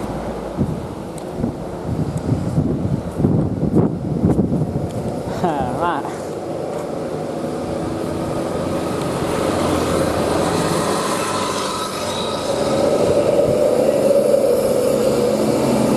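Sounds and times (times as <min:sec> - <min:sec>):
truck running: 0:06.2 - 0:15.9.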